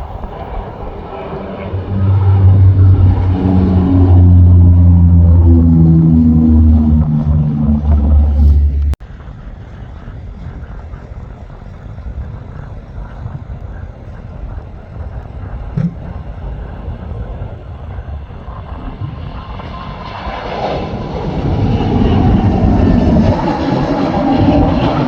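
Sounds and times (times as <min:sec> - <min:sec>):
quiet low rumble: 0:00.0 - 0:19.3
loud low engine: 0:01.1 - 0:09.0.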